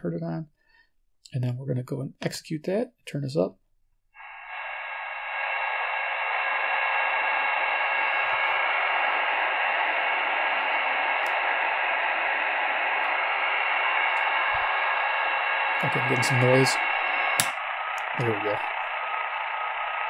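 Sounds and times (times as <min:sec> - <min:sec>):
faint steady radio tones: 0:04.2 - 0:20.0
radio static: 0:04.2 - 0:20.0.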